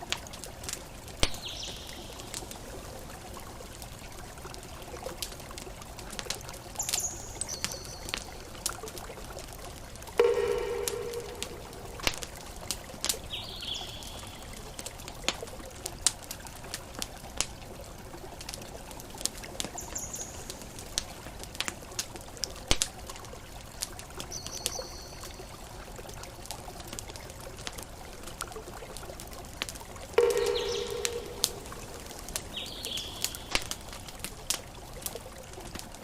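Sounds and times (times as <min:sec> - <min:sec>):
campfire crackling and popping: 0:00.0 - 0:36.0
short low-pitched tone: 0:10.2 - 0:12.3, 0:30.2 - 0:32.3.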